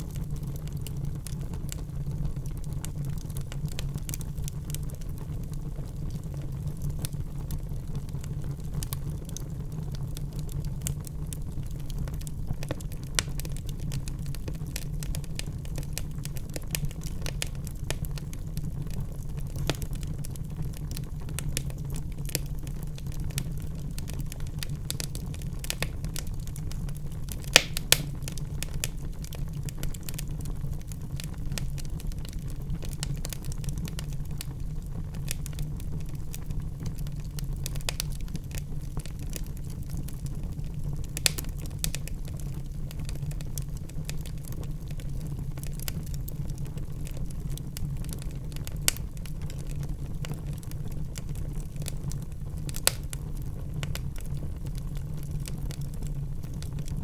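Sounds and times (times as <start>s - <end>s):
wood fire crackling: 0.0s - 57.0s
loud fire pops: 6.1s - 36.2s, 36.8s - 47.1s, 51.4s - 56.9s.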